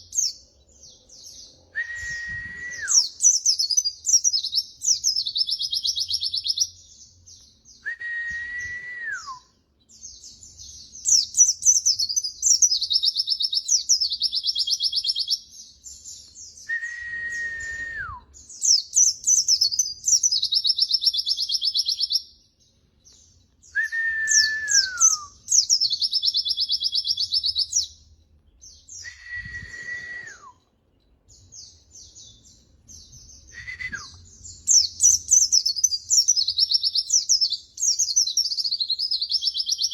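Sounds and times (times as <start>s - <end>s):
birds chirping and trilling: 0.0s - 7.8s, 9.5s - 16.7s, 17.3s - 29.1s, 30.6s - 39.9s
descending whistle: 1.7s - 3.1s, 7.8s - 9.5s, 16.7s - 18.3s, 23.8s - 25.4s, 29.0s - 30.6s, 33.5s - 34.2s.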